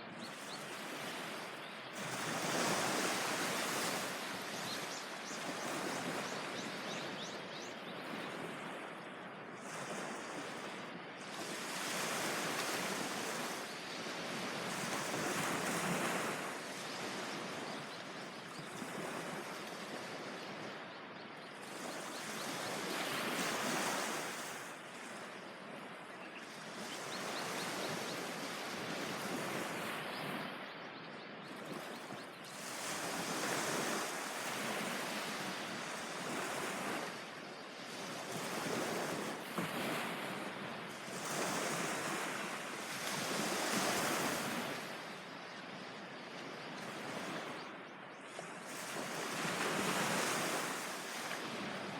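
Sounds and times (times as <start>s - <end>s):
ocean waves breaking: 31.8s - 45.2s, 46.8s - 51.9s.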